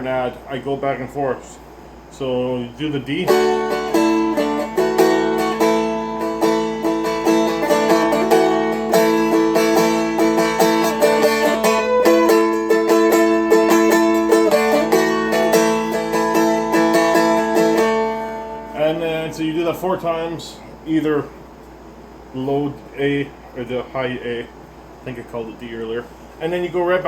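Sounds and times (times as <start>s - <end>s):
picked dulcimer melody: 3.3s - 19.0s.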